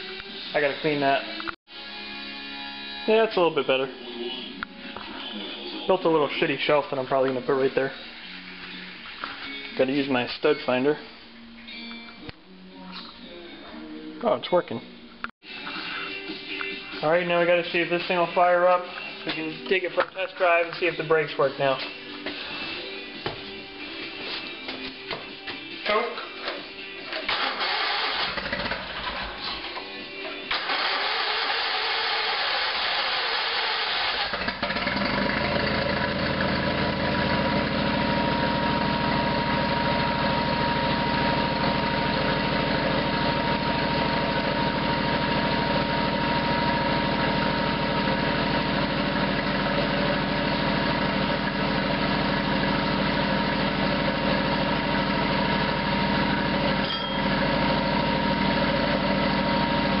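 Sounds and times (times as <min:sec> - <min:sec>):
garden tractor engine running: 0:33.6 - 1:00.0.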